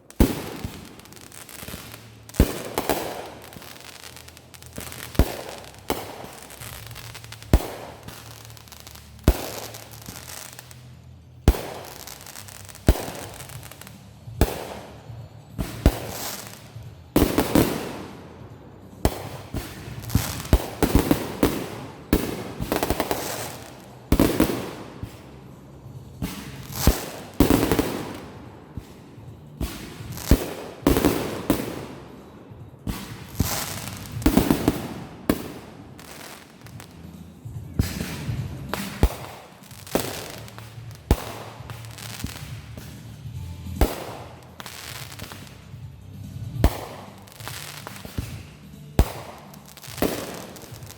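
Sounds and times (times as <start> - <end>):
fireworks banging: 0.0 - 50.9.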